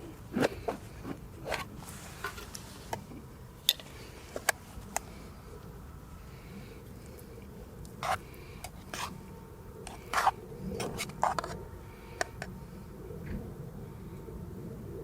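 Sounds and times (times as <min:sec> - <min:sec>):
low steady background hum: 0:00.0 - 0:15.0
short scrapes and clicks: 0:08.0 - 0:09.1, 0:09.9 - 0:11.6.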